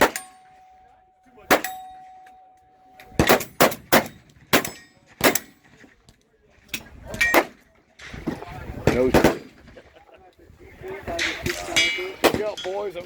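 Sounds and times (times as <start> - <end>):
gunshots: 0.0 - 0.4, 1.4 - 1.8, 3.1 - 5.6, 8.8 - 9.6
steel target ringing: 0.0 - 5.1.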